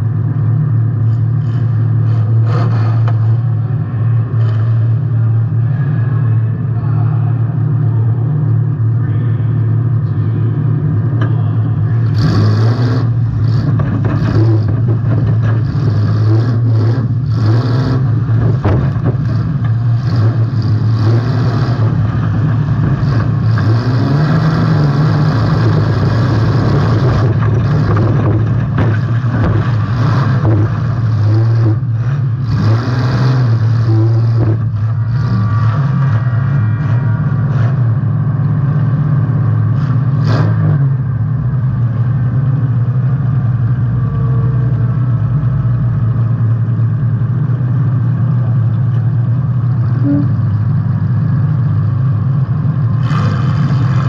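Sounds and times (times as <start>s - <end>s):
car engine revving: 0.0s - 54.0s
knocks and bangs: 18.3s - 19.8s, 27.1s - 31.0s.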